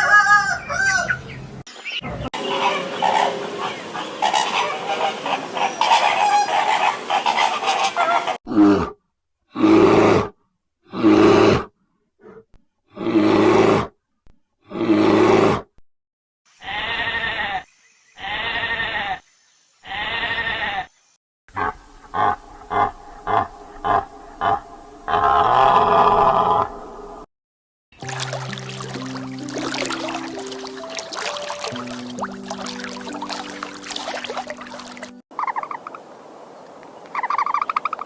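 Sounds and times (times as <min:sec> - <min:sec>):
animal calls: 0:30.6 - 0:36.0.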